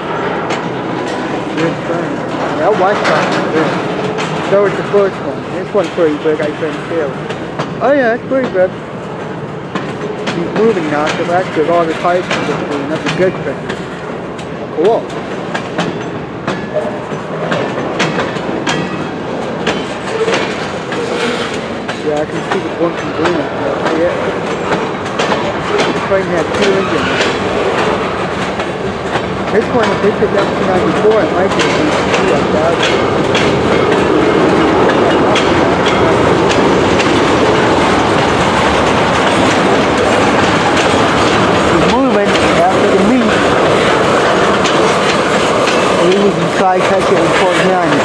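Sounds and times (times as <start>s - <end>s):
freight train rumble: 0.0s - 48.0s
wheel clacks over rail joints: 0.1s - 48.0s
faint wheel squeal: 21.0s - 21.7s.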